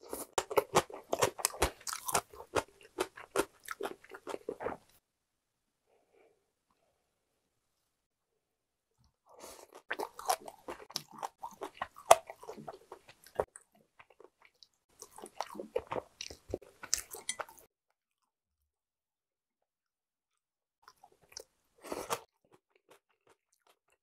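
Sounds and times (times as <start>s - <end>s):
wet crunchy chewing: 0.0s - 4.9s, 9.4s - 17.7s.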